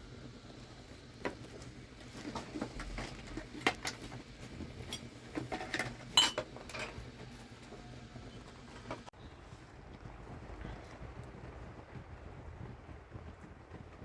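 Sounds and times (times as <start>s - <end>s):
cooking pots and utensils knocking: 2.3s - 7.9s
metallic clatter: 4.8s - 7.1s.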